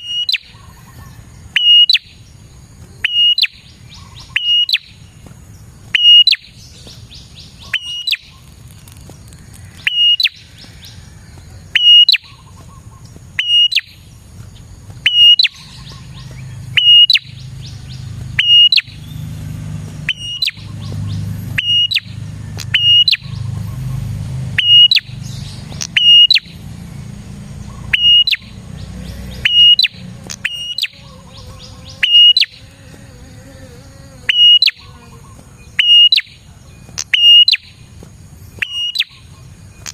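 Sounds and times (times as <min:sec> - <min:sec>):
bird calling high notes: 0:01.6 - 0:02.1, 0:03.0 - 0:05.0, 0:06.0 - 0:06.6, 0:07.4 - 0:08.5, 0:09.8 - 0:11.0, 0:11.7 - 0:12.5, 0:13.4 - 0:14.0, 0:15.1 - 0:17.4, 0:18.4 - 0:19.1, 0:20.1 - 0:20.9, 0:21.6 - 0:23.4, 0:24.6 - 0:25.2, 0:25.8 - 0:26.6, 0:27.6 - 0:32.8, 0:34.2 - 0:36.4, 0:37.0 - 0:37.8.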